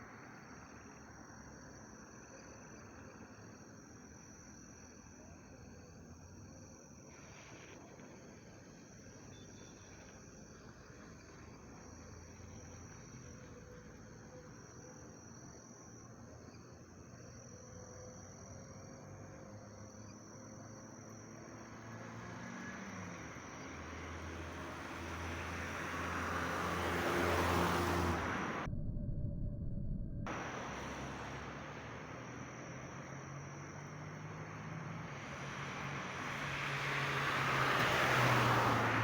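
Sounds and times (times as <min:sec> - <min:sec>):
motor vehicle approaching: 0:20.9 - 0:39.0
insects trilling: 0:30.3 - 0:38.8.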